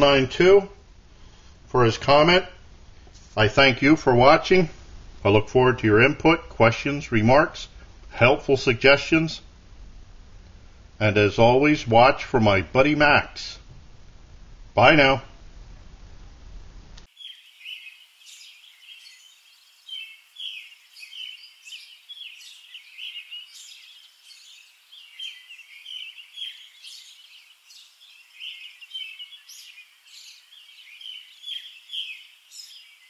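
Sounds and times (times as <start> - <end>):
small birds chirping: 17.0 - 33.0.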